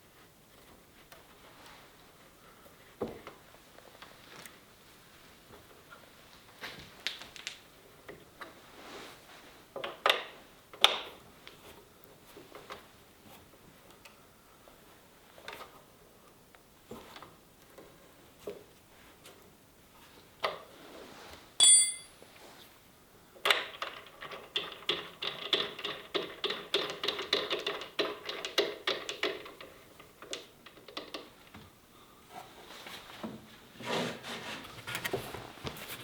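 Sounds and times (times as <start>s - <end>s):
bright ping: 21.6s - 22.2s.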